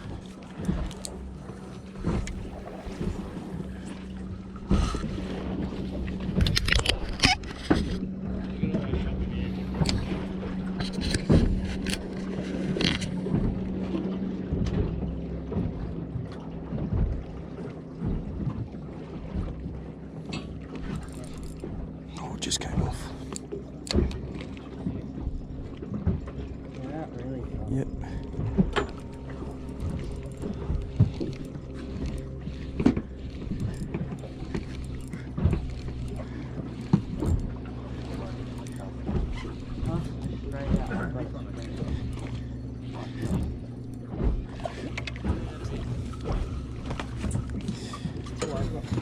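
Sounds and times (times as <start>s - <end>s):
steady low hum: 0.0s - 49.0s
water splashing around boat: 0.0s - 49.0s
wind: 0.0s - 49.0s
sharp knocks and clicks: 6.0s - 8.0s.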